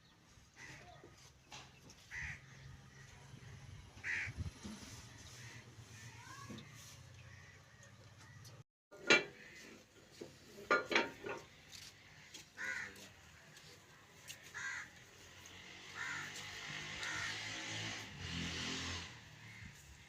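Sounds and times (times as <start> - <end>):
crows cawing: 0.5 - 1.2, 1.9 - 8.6, 11.8 - 18.0, 19.4 - 20.0.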